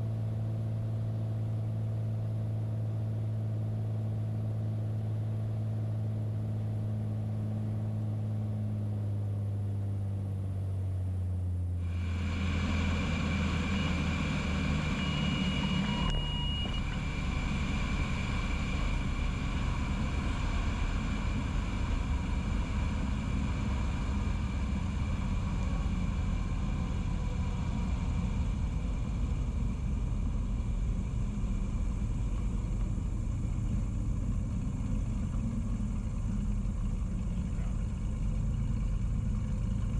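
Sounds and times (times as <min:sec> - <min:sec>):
light aircraft engine drone: 0:00.0 - 0:39.9
brief high tone: 0:14.9 - 0:17.0.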